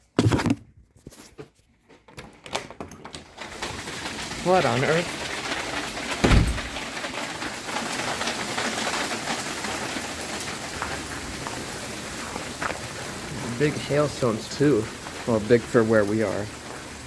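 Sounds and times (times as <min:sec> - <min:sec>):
hail and rain clattering: 0:02.6 - 0:17.0
dull thump: 0:06.2 - 0:06.8.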